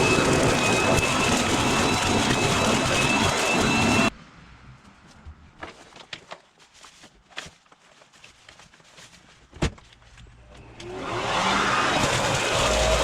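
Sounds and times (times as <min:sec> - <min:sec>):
garden blower motor starting: 0:00.0 - 0:04.1, 0:10.5 - 0:13.0
handling clicks and scuffs: 0:05.0 - 0:10.5.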